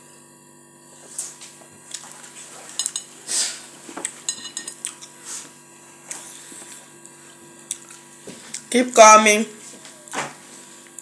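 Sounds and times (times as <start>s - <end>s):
cutlery scraping dishes: 2.6s - 3.1s, 4.2s - 4.8s.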